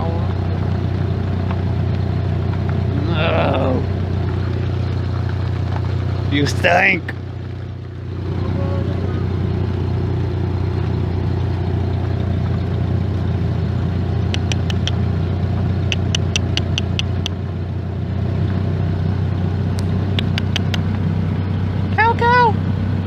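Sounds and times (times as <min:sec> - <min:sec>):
car engine low rumble: 0:00.0 - 0:23.0
quick sharp ticks: 0:14.3 - 0:15.0, 0:15.8 - 0:17.4, 0:19.8 - 0:21.0.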